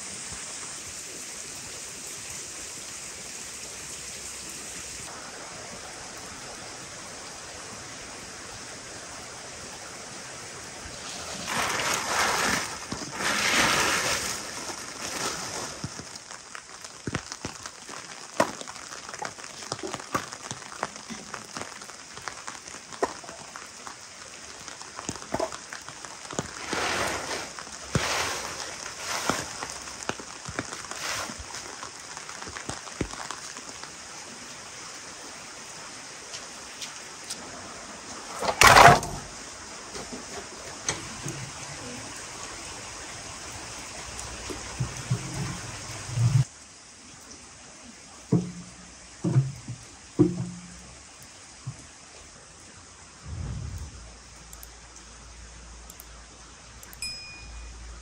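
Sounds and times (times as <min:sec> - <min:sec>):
steady rain falling: 0:00.0 - 0:58.0
wooden knocks of firewood logs: 0:25.1 - 0:25.6, 0:48.3 - 0:50.8
logs thudding into metal stove: 0:38.3 - 0:39.3, 0:48.3 - 0:50.8.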